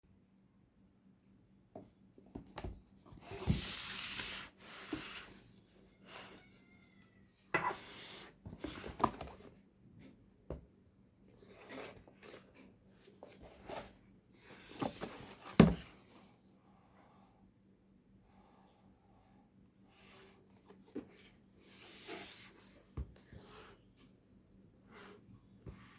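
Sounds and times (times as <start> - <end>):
cardboard box rustling and scraping: 3.1 - 5.6.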